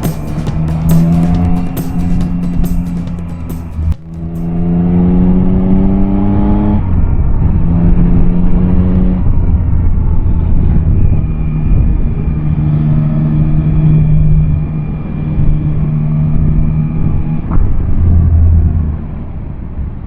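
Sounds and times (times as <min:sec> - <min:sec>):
motorcycle engine accelerating: 0:00.0 - 0:10.1.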